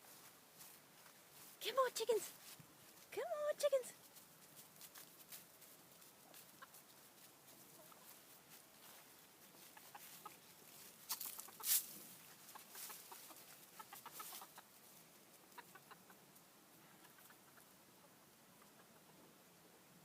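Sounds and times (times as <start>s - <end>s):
chickens clucking: 5.0s - 19.6s.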